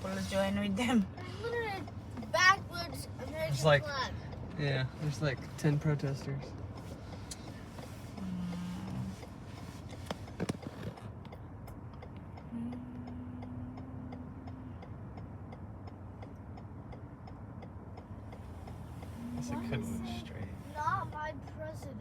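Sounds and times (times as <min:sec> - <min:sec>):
low rumble inside car: 0:00.0 - 0:22.0
car turn signal clicking: 0:00.1 - 0:22.0
steady low tone: 0:07.2 - 0:09.6, 0:11.7 - 0:21.3.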